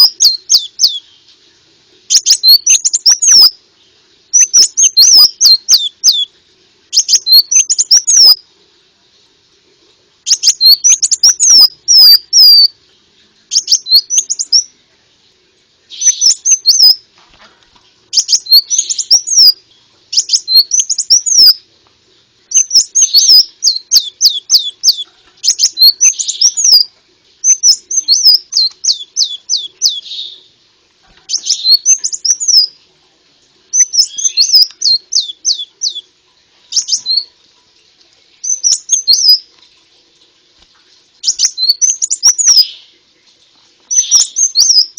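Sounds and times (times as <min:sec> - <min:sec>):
bird song with chirps and trills: 0:00.0 - 0:01.5, 0:02.1 - 0:06.3, 0:06.9 - 0:08.4, 0:10.2 - 0:14.8, 0:15.9 - 0:21.7, 0:22.4 - 0:32.8, 0:33.7 - 0:37.4, 0:38.2 - 0:39.5, 0:41.2 - 0:43.1, 0:43.8 - 0:44.9.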